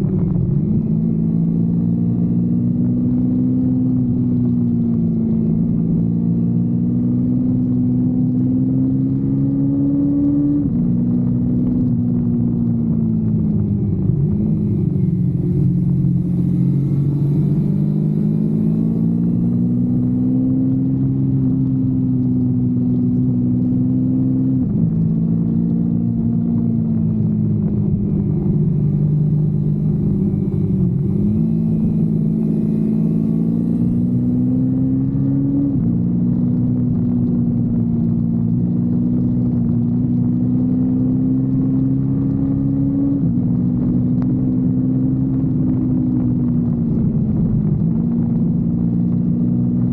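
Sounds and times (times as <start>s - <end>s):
motorcycle engine shifting gears: 0.0s - 49.9s
wind and road rumble: 0.0s - 49.9s.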